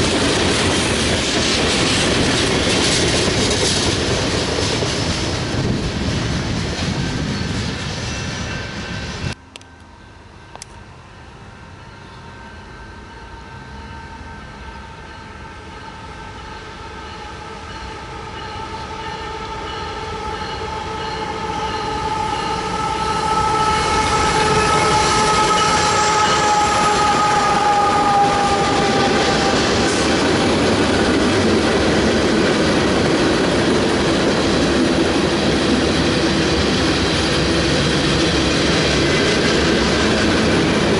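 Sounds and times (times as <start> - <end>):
freight train rolling by: 0.0 - 40.9
locomotive horn chord: 9.4 - 30.6.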